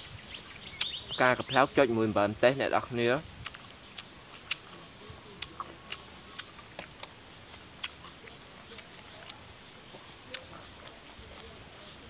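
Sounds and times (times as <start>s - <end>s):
chewing raw vegetables: 3.4s - 12.0s
lip smacks: 3.4s - 12.0s.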